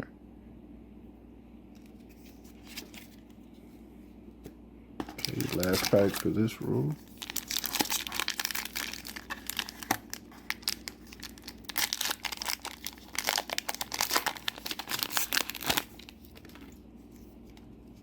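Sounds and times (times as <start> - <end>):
foil wrapper tearing and crinkling: 5.1 - 16.8.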